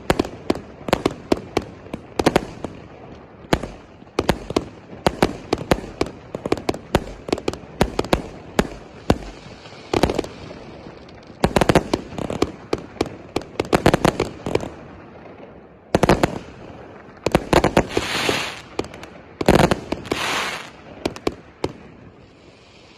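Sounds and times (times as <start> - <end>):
firework bangs: 0.0 - 22.3
firework hissing rushes: 8.9 - 10.9, 17.7 - 18.8, 19.6 - 20.9.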